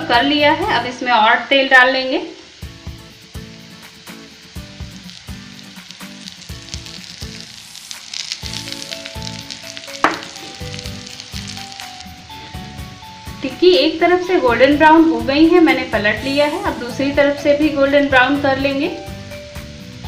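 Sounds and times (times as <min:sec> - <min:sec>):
patties sizzling in oil: 0:00.0 - 0:20.0
oil pouring: 0:02.7 - 0:12.7.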